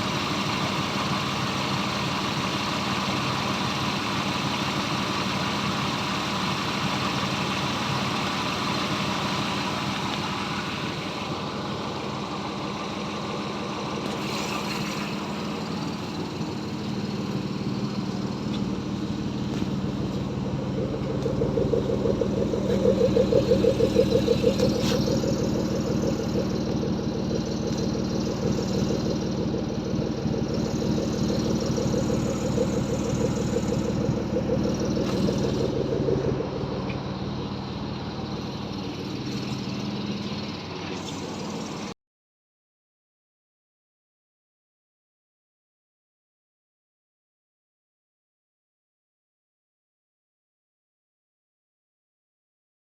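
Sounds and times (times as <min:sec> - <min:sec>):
car engine running: 0:00.0 - 0:41.9.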